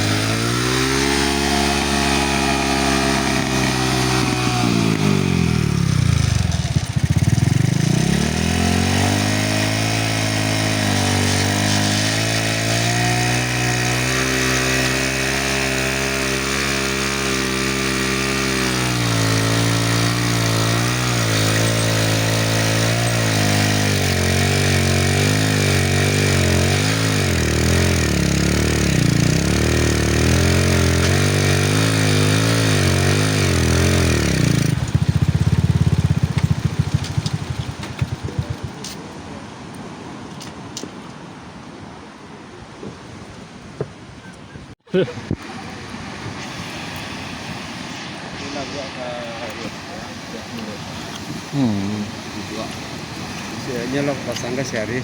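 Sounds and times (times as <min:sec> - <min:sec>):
small engine running: 0:00.0 - 0:38.9, 0:51.4 - 0:55.0.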